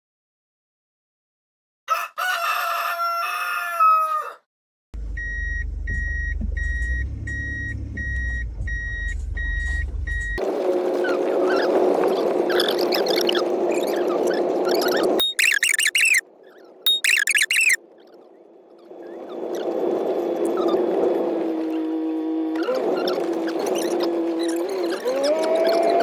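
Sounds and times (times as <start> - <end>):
rooster crowing: 1.9 - 4.4
low rumble: 5.0 - 10.4
repeating electronic beep: 14.7 - 16.2, 16.9 - 17.8.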